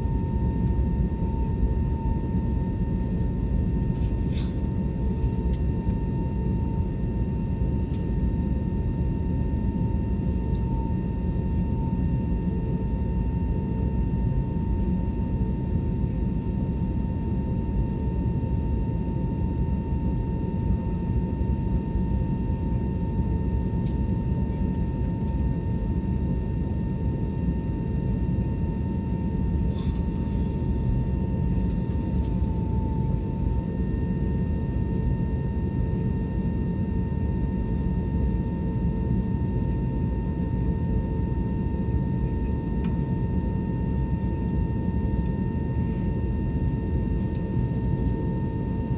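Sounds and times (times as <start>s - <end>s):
steady whine: 0.0s - 16.8s, 21.4s - 37.2s, 43.7s - 48.9s
airliner cabin engine rumble: 0.0s - 48.9s.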